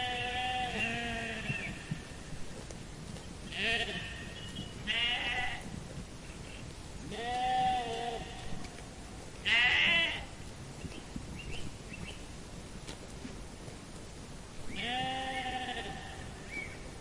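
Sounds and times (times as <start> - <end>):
sheep bleating: 0.0 - 2.0, 3.5 - 5.7, 7.1 - 8.8, 9.4 - 10.3, 14.7 - 16.6.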